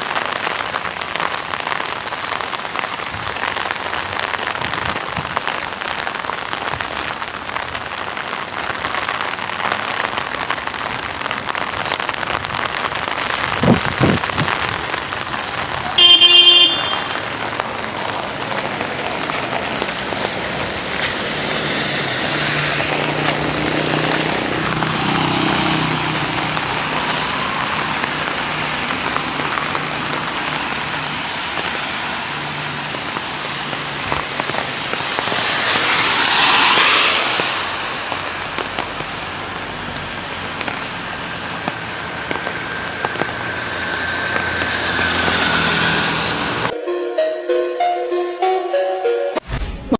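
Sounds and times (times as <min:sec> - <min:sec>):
rain hiss: 0:00.0 - 0:46.7
traffic on wet roads: 0:00.0 - 0:46.8
vehicle horn toot: 0:16.0 - 0:17.3.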